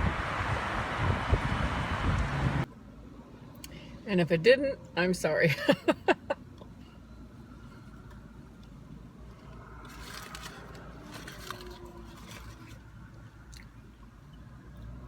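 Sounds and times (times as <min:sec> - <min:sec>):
food packaging rustling and crunching: 0:09.2 - 0:13.2.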